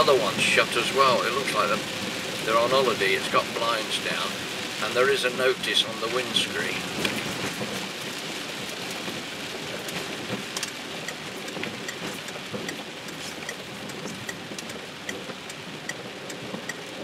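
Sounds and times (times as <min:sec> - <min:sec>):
rain on car roof: 0:00.0 - 0:17.0
light regular ticking: 0:09.8 - 0:17.0.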